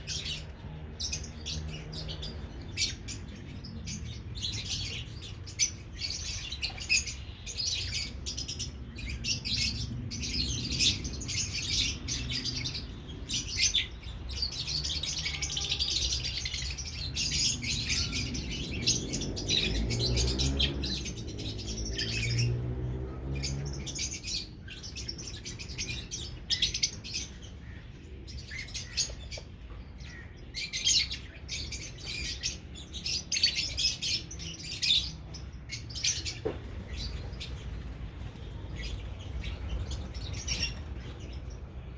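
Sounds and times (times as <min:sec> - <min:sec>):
lovebirds chirping rapidly: 0:23.3 - 0:41.9.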